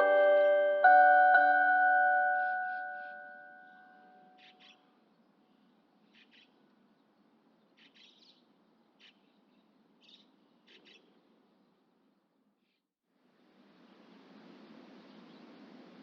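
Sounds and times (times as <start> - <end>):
faint bird chirps: 2.4 - 6.6.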